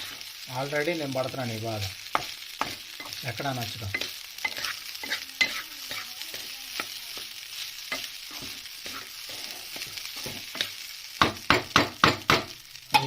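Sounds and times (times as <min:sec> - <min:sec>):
rice sizzling in pan: 0:00.0 - 0:13.0
spatula scraping pan: 0:02.1 - 0:10.8.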